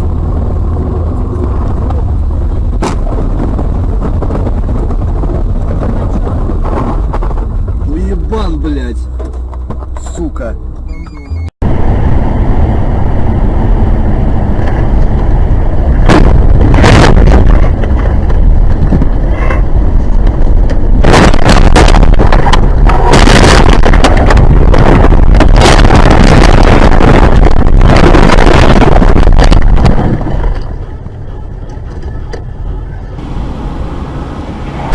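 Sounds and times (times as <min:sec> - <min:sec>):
vehicle rumble: 0:00.0 - 0:34.9
rushes of noise: 0:10.9 - 0:34.9.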